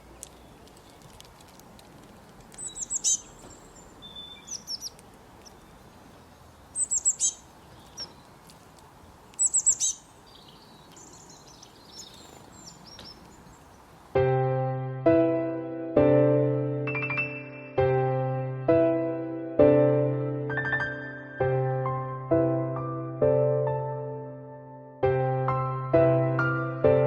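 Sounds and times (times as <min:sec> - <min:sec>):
scratchy bird twittering: 0:02.6 - 0:05.9, 0:06.8 - 0:08.4, 0:09.4 - 0:13.8
small songbird calling: 0:02.6 - 0:08.4, 0:09.0 - 0:13.9.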